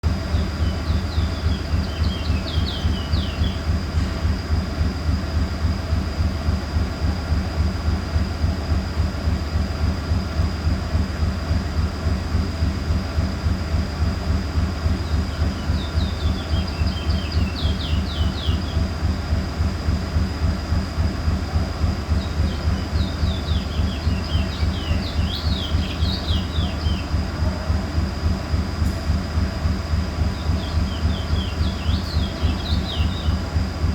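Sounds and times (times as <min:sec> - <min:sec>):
pulsing low mechanical rumble: 0:00.0 - 0:33.9
small bird chirping: 0:00.3 - 0:03.8, 0:14.8 - 0:18.9, 0:22.1 - 0:27.3, 0:30.2 - 0:33.6.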